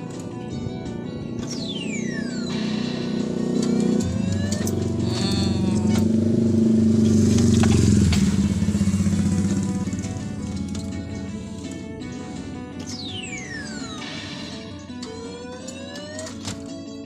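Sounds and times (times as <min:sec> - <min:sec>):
electronic music: 0:00.0 - 0:06.4, 0:07.3 - 0:16.5
vehicle engine passing by: 0:01.9 - 0:12.3.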